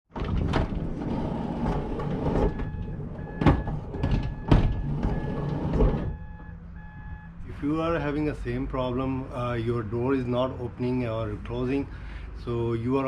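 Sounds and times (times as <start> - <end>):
sliding door knocking and rattling: 0.1 - 6.2
repeating beep: 6.1 - 7.4.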